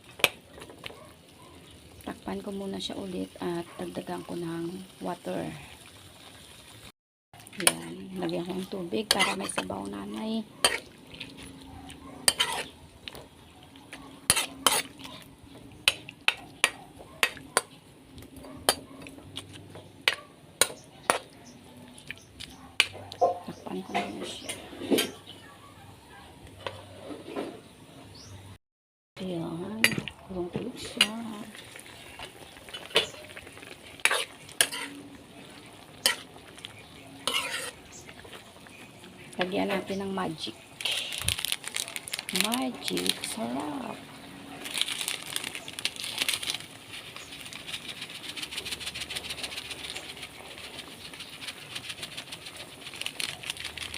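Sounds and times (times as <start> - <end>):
utensil stirring in a pot: 7.4 - 17.8, 30.8 - 40.2, 44.6 - 53.9.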